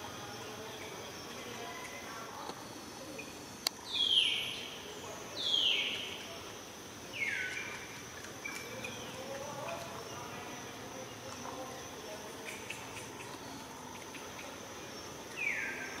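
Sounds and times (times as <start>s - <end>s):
high insect drone: 0.0s - 16.0s
harsh falling bird calls: 3.8s - 6.2s.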